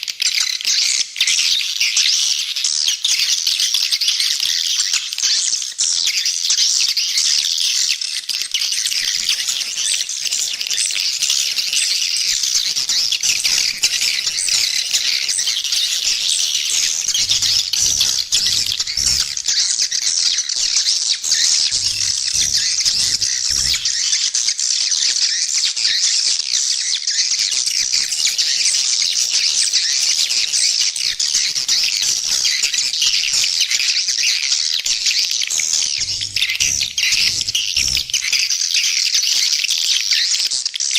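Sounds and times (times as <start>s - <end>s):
swiftlets twittering chorus: 8.2s - 24.6s, 27.3s - 38.7s.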